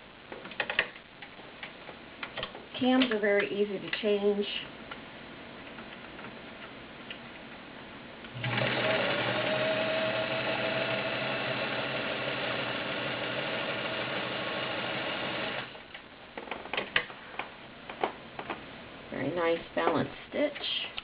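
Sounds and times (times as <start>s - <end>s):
sewing machine stitching: 8.3s - 15.8s.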